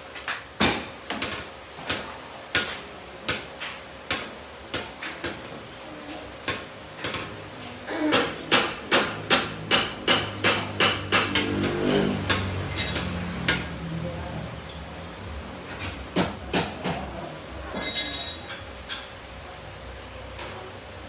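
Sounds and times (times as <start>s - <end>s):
hammer striking metal: 8.1s - 13.7s.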